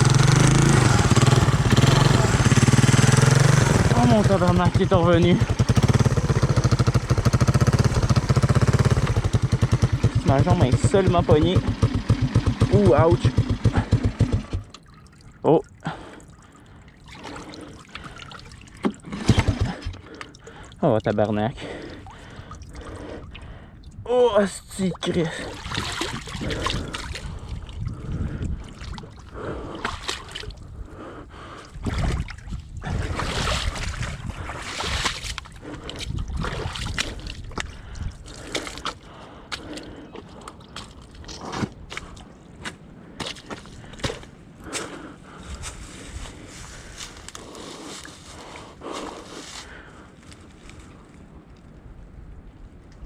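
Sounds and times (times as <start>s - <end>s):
water splashing and sloshing: 0.0s - 53.0s
gasping breaths: 19.5s - 20.8s, 21.5s - 23.9s, 26.3s - 28.6s, 30.6s - 31.8s, 35.5s - 36.2s, 36.9s - 40.7s
wind on microphone: 25.7s - 29.6s, 31.7s - 38.4s.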